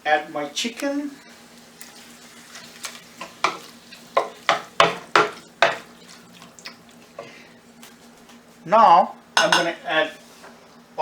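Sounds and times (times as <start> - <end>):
faint steady hum: 0.0 - 11.0
food sizzling in a pan: 1.2 - 7.2
spoon clattering against pan: 3.2 - 5.9.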